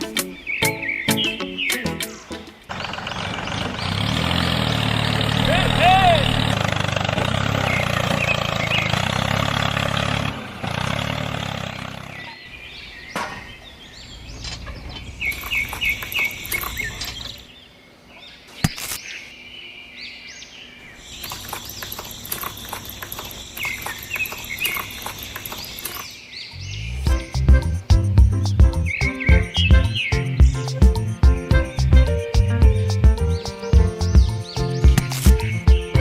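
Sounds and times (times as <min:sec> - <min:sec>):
birds chirping: 0:00.0 - 0:36.0
motor running: 0:02.7 - 0:10.6.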